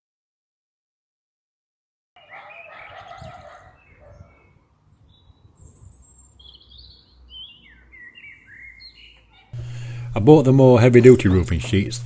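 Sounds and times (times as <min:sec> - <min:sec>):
songbirds chirping and singing: 0:02.2 - 0:09.6.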